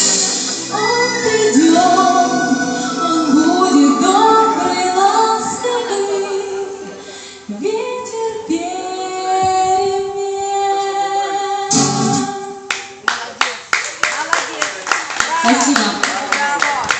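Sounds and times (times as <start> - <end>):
instrumental backing music: 0.0 - 13.0
woman singing: 0.6 - 12.7
people clapping: 12.7 - 16.9.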